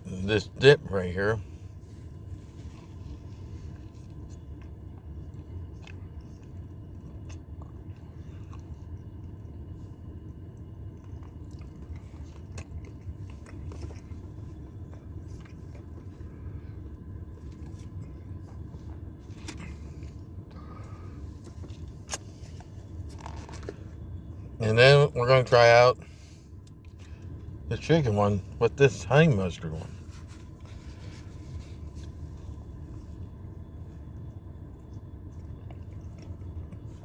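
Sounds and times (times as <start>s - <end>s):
steady low rumble: 0.0s - 37.0s
person chewing food: 2.0s - 24.2s, 30.2s - 37.0s.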